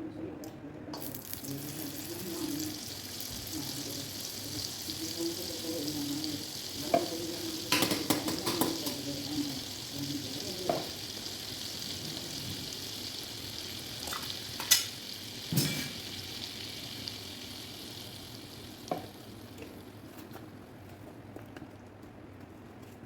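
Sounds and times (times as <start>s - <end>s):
food sizzling in a pan: 1.0s - 20.6s
spoon knocking against a pan: 6.9s - 9.0s.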